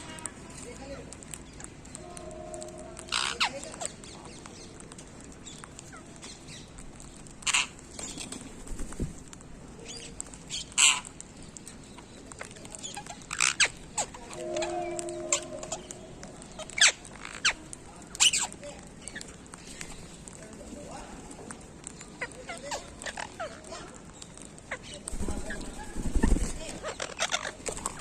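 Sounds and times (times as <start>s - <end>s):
rustling: 0.1s - 28.0s
quiet parrot chatter: 1.4s - 8.0s, 9.8s - 28.0s
parrots squawking: 3.0s - 4.0s, 7.4s - 7.8s, 10.6s - 11.1s, 12.9s - 17.6s, 24.6s - 28.0s.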